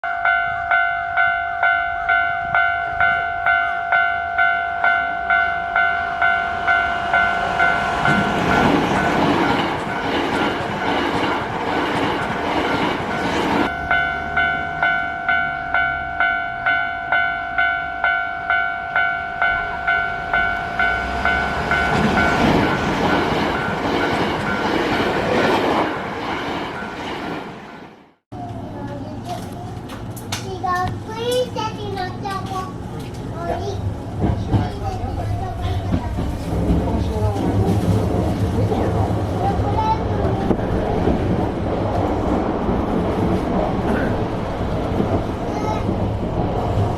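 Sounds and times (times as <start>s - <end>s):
level crossing warning bell: 0.0s - 11.8s, 12.7s - 25.0s
train wheels rushing past: 5.8s - 16.2s, 19.8s - 28.0s, 29.9s - 46.9s.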